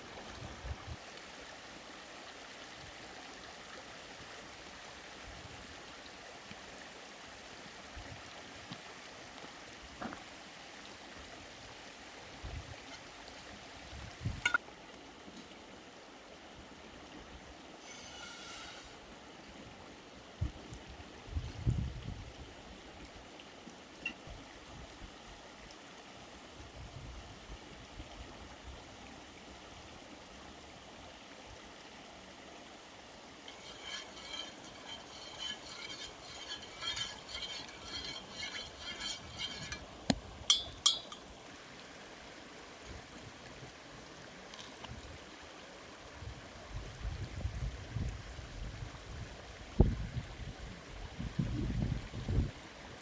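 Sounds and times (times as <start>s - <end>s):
flowing water: 0.0s - 53.0s
glassware clinking: 33.5s - 39.8s, 40.5s - 41.2s.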